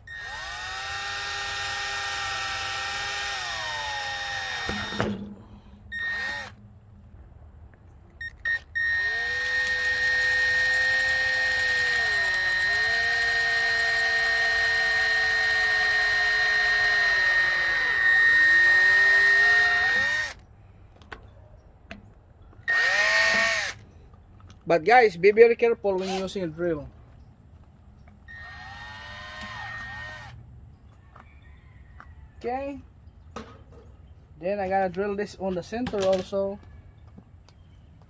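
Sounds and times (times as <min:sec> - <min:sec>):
electric drill boring into plastic: 0:00.0 - 0:05.3, 0:05.9 - 0:06.6, 0:08.5 - 0:20.4, 0:22.7 - 0:23.8, 0:28.3 - 0:30.4.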